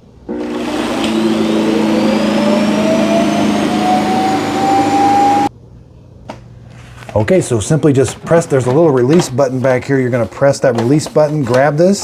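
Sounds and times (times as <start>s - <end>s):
suction motor rushing whine: 0.3s - 5.5s.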